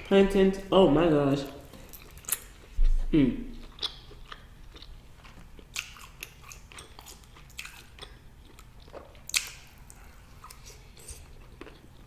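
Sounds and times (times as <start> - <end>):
person chewing food: 1.4 - 12.0
wet mouth clicks and smacks: 9.3 - 9.6.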